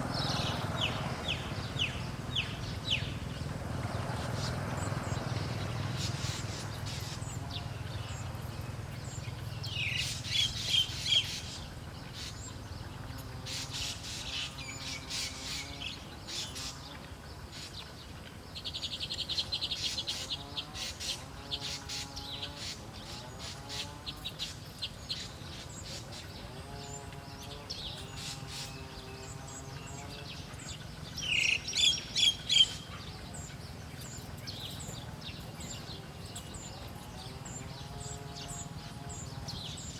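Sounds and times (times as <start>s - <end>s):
songbirds chirping: 0.0s - 39.9s
bird trill: 18.6s - 39.9s.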